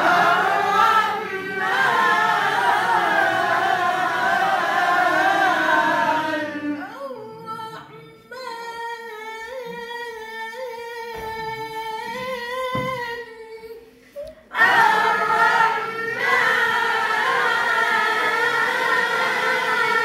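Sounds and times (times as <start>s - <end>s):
voices chanting in unison: 0.0s - 7.9s, 14.5s - 20.0s.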